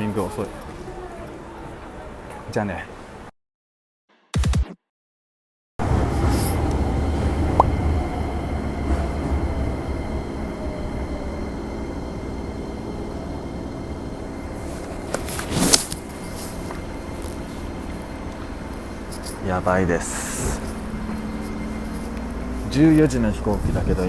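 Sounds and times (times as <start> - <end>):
train rumble from inside: 5.8 - 24.0.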